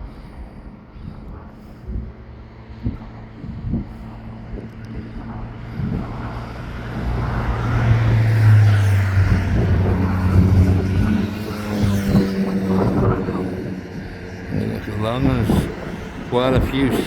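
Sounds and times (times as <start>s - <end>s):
low engine hum: 0.0s - 17.0s
vehicle passing on road: 0.0s - 17.0s.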